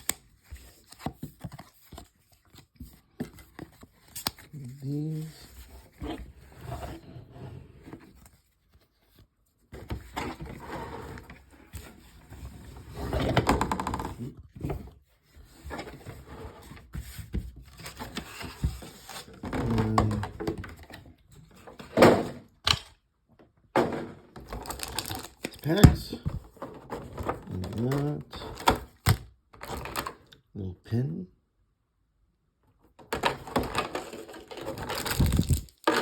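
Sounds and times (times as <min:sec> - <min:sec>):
packaging rustling and scraping: 0:24.4 - 0:30.1, 0:33.2 - 0:36.0.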